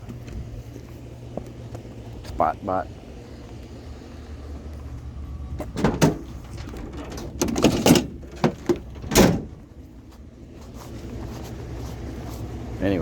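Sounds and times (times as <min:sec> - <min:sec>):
vehicle engine idling: 0:00.0 - 0:13.0
heavy thump: 0:05.6 - 0:09.6
scrap items clunking and knocking: 0:05.6 - 0:09.6.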